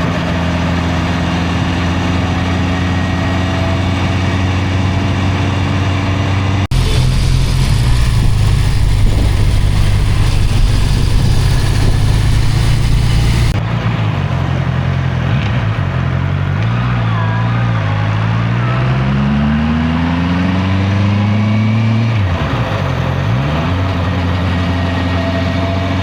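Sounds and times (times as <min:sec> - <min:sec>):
wind and road noise: 0:00.0 - 0:17.1
motorcycle engine running: 0:00.1 - 0:13.6.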